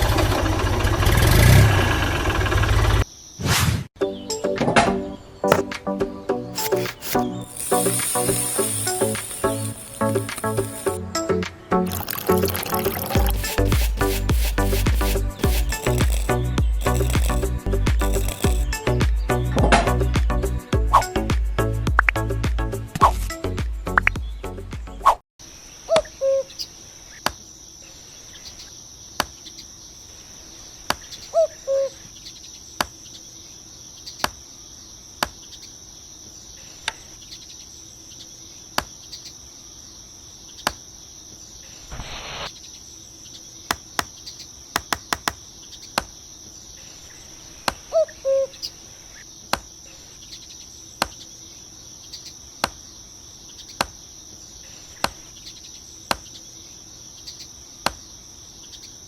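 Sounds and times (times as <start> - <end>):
insects chirring: 6.6 - 11.0, 11.8 - 19.0, 25.4 - 59.0
sharp clicks: 6.6 - 11.0, 11.9 - 18.8
short chirps: 6.6 - 11.0, 11.9 - 18.8.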